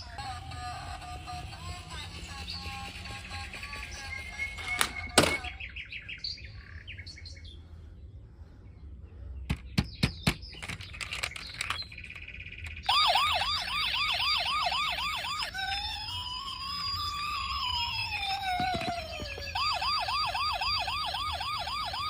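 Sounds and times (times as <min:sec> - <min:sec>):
toy siren warbling: 0:00.0 - 0:05.6, 0:10.6 - 0:22.0
toy car clicks and chirps: 0:00.1 - 0:05.5, 0:09.5 - 0:22.0.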